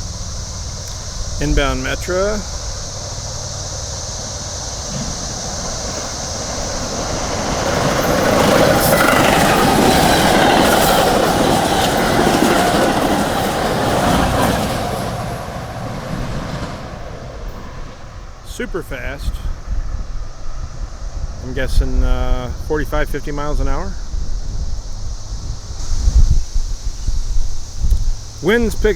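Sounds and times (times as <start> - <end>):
train wheels clattering on rails: 0.0 - 18.7.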